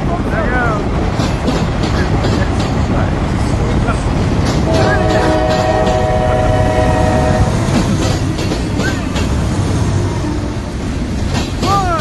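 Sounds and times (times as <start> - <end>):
train wheels rumbling on rail: 0.0 - 12.0
multi-note train horn: 4.6 - 7.8.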